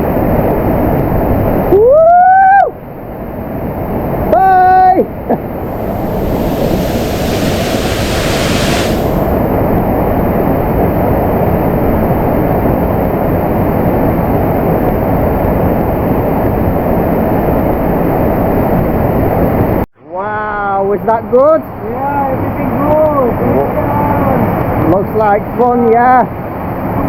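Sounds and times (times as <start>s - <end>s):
waterfall and river roaring: 5.6s - 9.3s.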